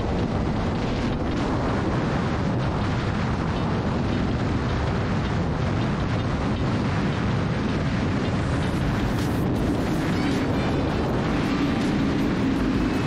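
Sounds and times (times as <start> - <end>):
wind rushing on microphone: 0.0 - 13.0.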